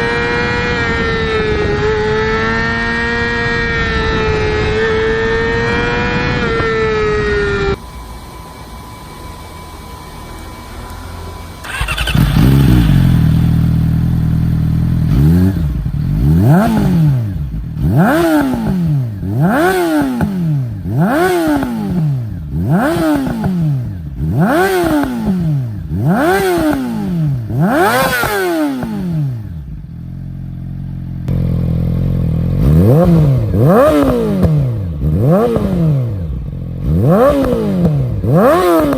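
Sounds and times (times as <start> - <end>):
motorcycle engine revving: 0.0 - 38.9
wavering pitched tone: 3.8 - 13.7.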